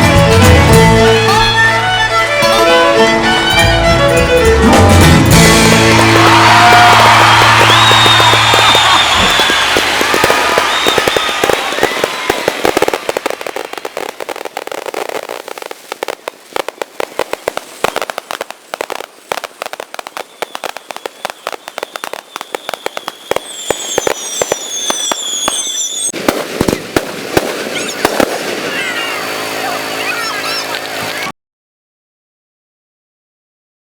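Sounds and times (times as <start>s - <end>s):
fireworks crackling: 5.1s - 31.3s
fireworks whistling: 5.3s - 31.3s.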